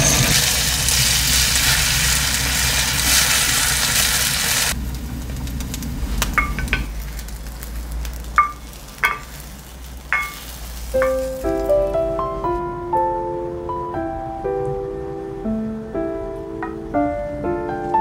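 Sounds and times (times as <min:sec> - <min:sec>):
egg sizzling in a skillet: 0:00.0 - 0:11.9
chopsticks stirring: 0:08.2 - 0:11.9
skillet clinking against bowl: 0:08.4 - 0:09.4, 0:10.1 - 0:11.4.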